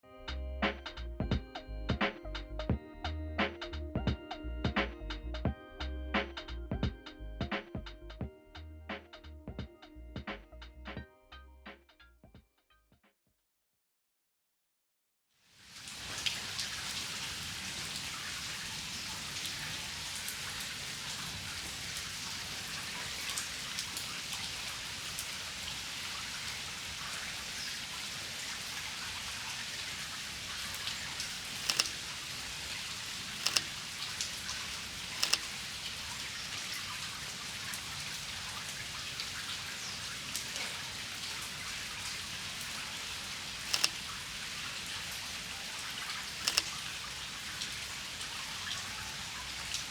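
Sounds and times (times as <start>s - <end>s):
steady rain: 15.5s - 49.9s.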